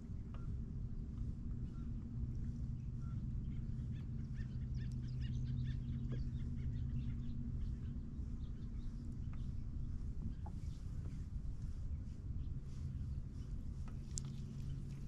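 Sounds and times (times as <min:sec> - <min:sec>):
steady low hum: 0:00.0 - 0:15.0
birds chirping: 0:13.4 - 0:15.0.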